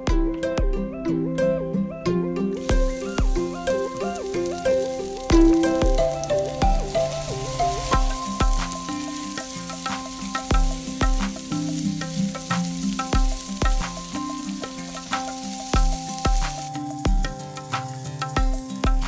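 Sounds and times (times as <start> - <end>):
background music with steady beat: 0.0 - 19.0
wooden spoon stirring in pot: 2.6 - 16.9
onion and garlic sizzling in oil: 2.6 - 19.0.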